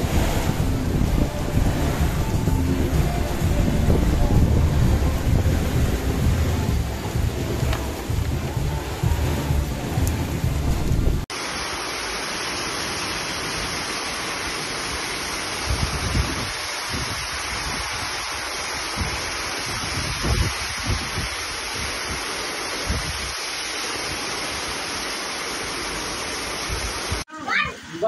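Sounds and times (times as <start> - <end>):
wind gusts buffeting microphone: 0.0 - 9.3, 10.0 - 11.3, 15.6 - 23.4
water streaming off roof: 0.0 - 27.7
heavy rain hissing: 0.0 - 28.0.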